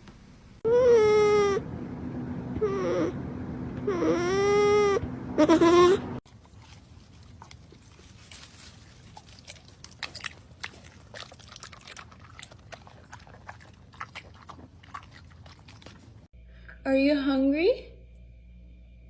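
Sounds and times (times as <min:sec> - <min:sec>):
animal chewing crunchy food: 0:06.2 - 0:16.3.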